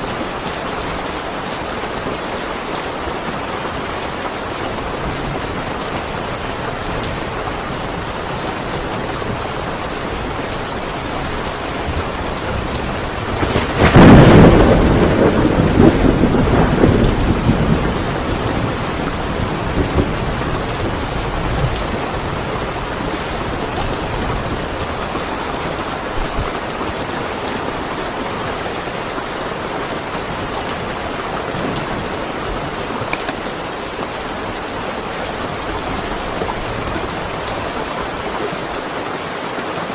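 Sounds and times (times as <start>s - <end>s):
heavy rain: 0.0s - 39.9s
thunderclap rumbling: 6.8s - 38.8s.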